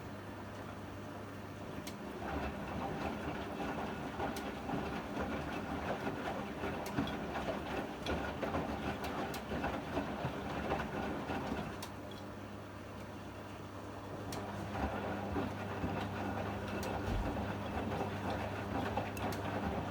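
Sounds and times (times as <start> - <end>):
washing machine rumbling: 14.1 - 19.9.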